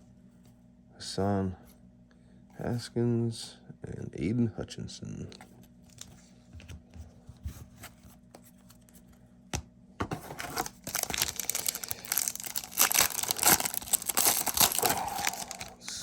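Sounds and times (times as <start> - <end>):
card pack wrapper tearing and crinkling: 10.2 - 16.0.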